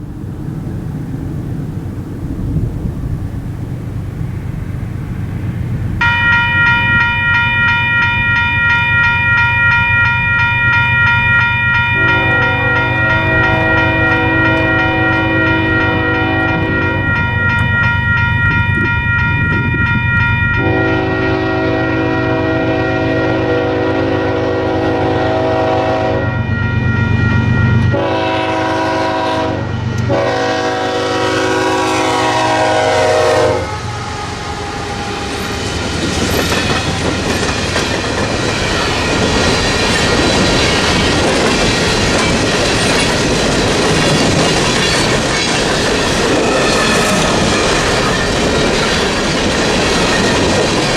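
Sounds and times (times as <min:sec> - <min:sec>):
train wheels clattering on rails: 0:04.2 - 0:21.7, 0:33.8 - 0:50.9
electronic crossing bell ringing: 0:06.0 - 0:22.1, 0:26.0 - 0:28.3, 0:35.3 - 0:50.9
train horn blasts: 0:11.0 - 0:17.8, 0:20.5 - 0:37.4.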